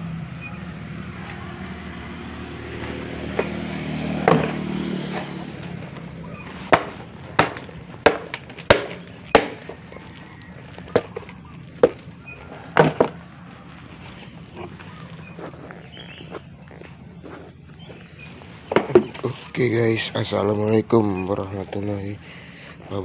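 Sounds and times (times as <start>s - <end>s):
two-stroke motorcycle idling: 0.0s - 23.0s
sharp knocks: 3.2s - 5.4s, 6.6s - 9.8s, 12.7s - 13.2s.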